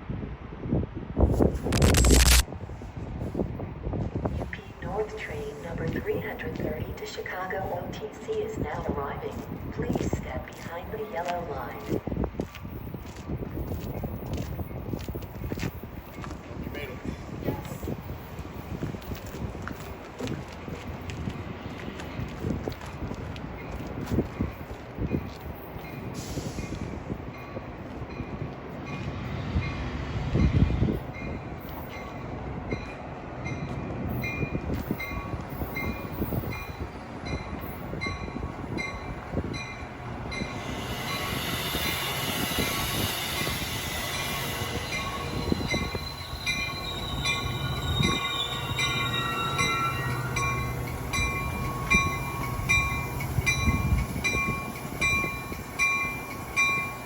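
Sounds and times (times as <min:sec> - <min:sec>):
commuter train moving: 0:00.0 - 0:57.0
train wheels squealing on rails: 0:24.4 - 0:57.0
bell ringing: 0:43.4 - 0:57.0.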